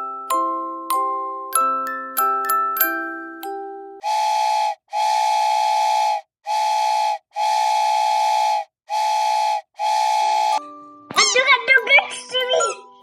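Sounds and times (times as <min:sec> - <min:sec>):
whistle blasts: 0:04.0 - 0:10.6.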